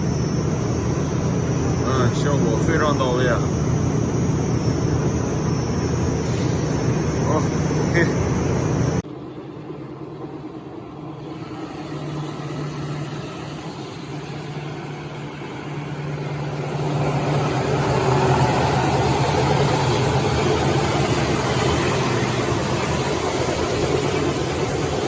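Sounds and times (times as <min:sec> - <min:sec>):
sanding machine motor hum: 0:10.4 - 0:25.0.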